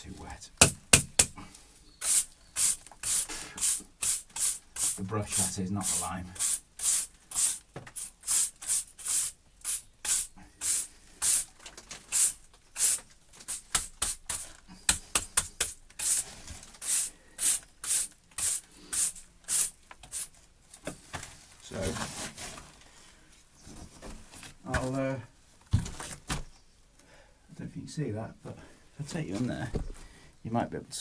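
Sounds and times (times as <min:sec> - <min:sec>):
brush dabbing: 0:02.0 - 0:11.5
stiff brush scratching on stone: 0:02.0 - 0:11.5.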